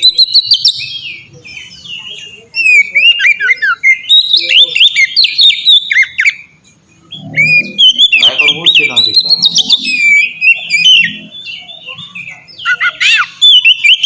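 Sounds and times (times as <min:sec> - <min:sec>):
bird singing loud whistles: 0:02.6 - 0:06.4, 0:07.1 - 0:11.6, 0:12.6 - 0:14.0.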